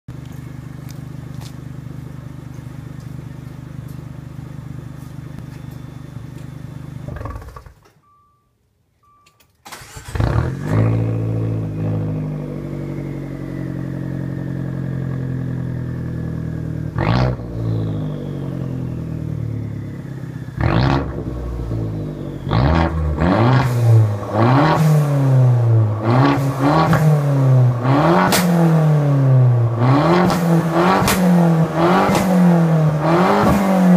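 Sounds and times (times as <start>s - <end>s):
car exhaust idling and revving: 0.1s - 7.9s, 10.0s - 33.9s.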